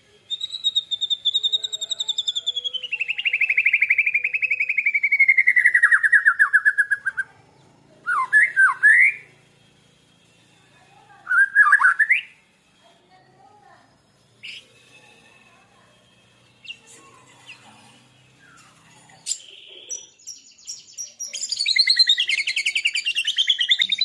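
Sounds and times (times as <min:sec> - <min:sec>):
swooping whistled bird notes: 0:00.3 - 0:07.3, 0:08.1 - 0:09.3, 0:11.3 - 0:12.4, 0:19.3 - 0:24.0
songbirds singing: 0:00.3 - 0:09.3, 0:16.3 - 0:24.0.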